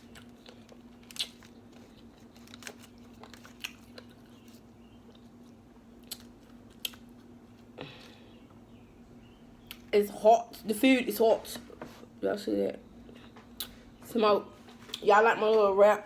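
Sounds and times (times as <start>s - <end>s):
chewing and biting: 0.0s - 8.1s
faint steady hum: 0.0s - 16.0s.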